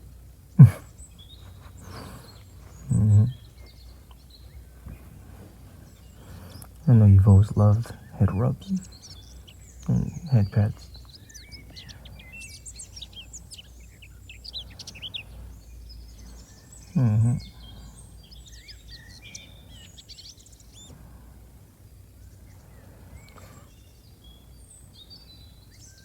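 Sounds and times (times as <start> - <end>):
small birds chirping: 0.0 - 26.0
man humming: 0.6 - 0.9, 2.8 - 3.4, 6.9 - 8.9, 9.9 - 10.8, 17.0 - 17.7.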